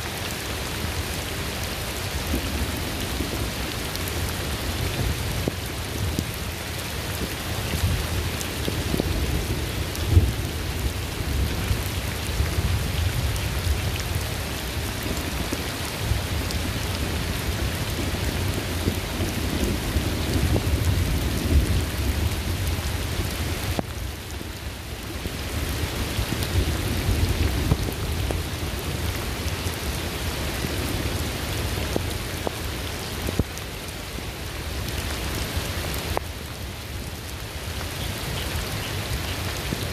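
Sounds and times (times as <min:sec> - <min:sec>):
steady rain falling: 0:00.0 - 0:39.9
rolling thunder rumble: 0:02.2 - 0:24.4.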